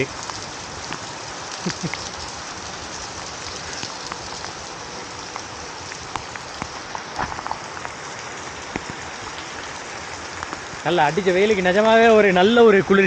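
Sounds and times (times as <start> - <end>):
heavy rain hissing: 0.0 - 13.0
sharp raindrop hits: 0.0 - 13.0.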